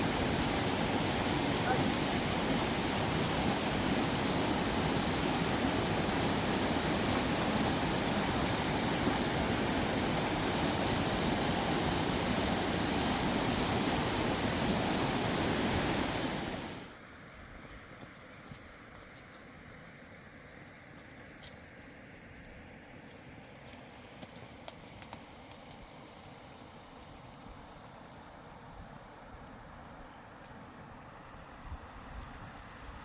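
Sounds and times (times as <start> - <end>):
river rushing over rocks: 0.0 - 16.9.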